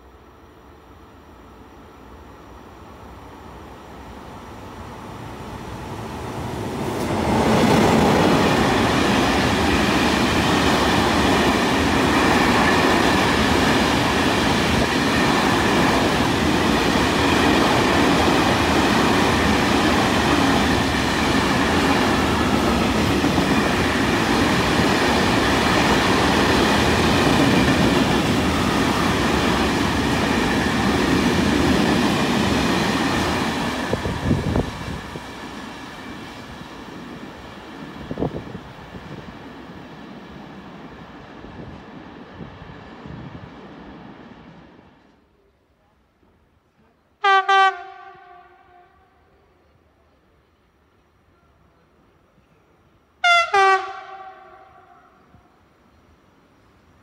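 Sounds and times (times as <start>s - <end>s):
train passing at speed: 0.0s - 57.0s.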